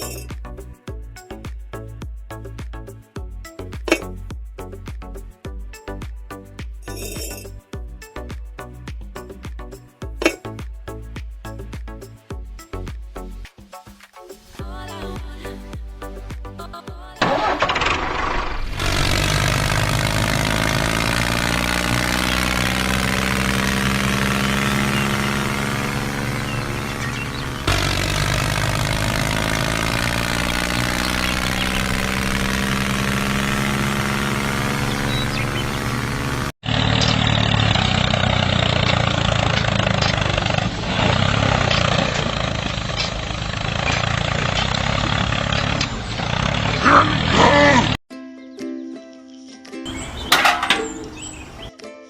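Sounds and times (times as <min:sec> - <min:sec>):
tractor engine running: 0:00.0 - 0:00.7, 0:17.2 - 0:48.0, 0:49.9 - 0:51.7
dull engine noise: 0:17.2 - 0:48.0, 0:49.9 - 0:51.7.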